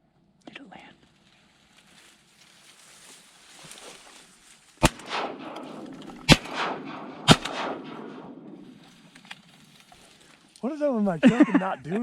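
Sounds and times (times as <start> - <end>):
shotgun blasts echoing: 4.8 - 9.1.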